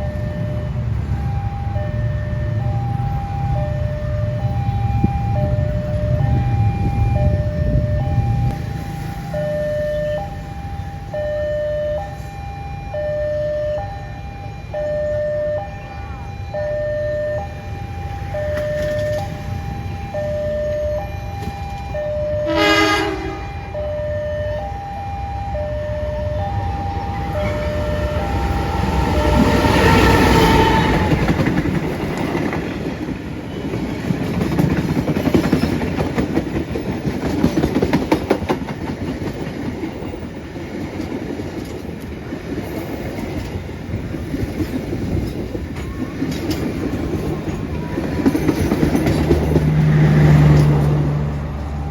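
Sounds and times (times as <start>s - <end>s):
level crossing warning signal: 0.0s - 36.2s, 44.6s - 51.9s
train passing at speed: 0.0s - 51.9s
train horn blast: 22.1s - 23.8s, 25.8s - 31.6s
wheels clacking over rail joints: 26.4s - 51.9s.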